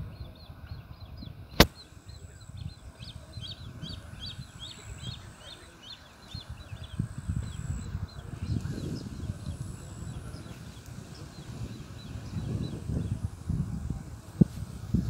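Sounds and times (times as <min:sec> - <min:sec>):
small birds chirping: 0:00.0 - 0:15.0
wind rumble on microphone: 0:00.0 - 0:15.0
sharp click: 0:01.5 - 0:01.8.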